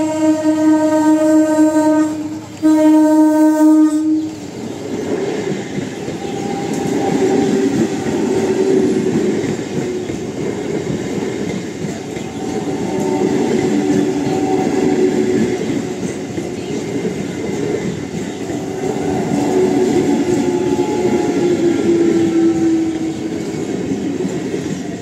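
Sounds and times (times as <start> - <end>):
train horn blasts: 0.0 - 4.4, 6.1 - 8.5, 12.2 - 15.2, 18.5 - 23.6
train wheels rumbling and clattering: 0.0 - 25.0.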